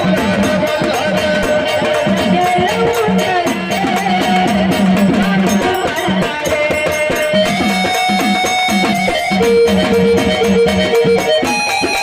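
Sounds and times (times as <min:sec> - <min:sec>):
folk music with fast drum beat: 0:00.0 - 0:12.0.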